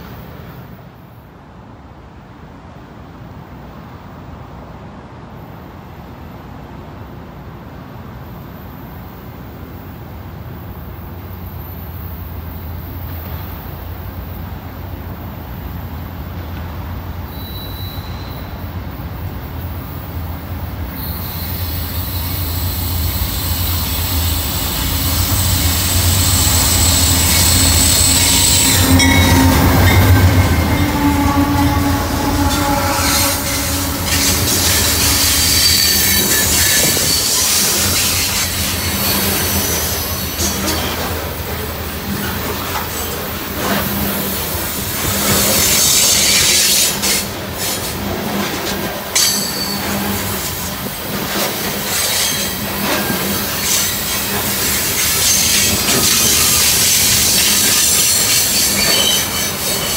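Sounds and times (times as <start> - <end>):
diesel locomotive engine drone: 0.0 - 59.9
steel wheels squealing on track: 17.2 - 18.7, 20.9 - 59.9.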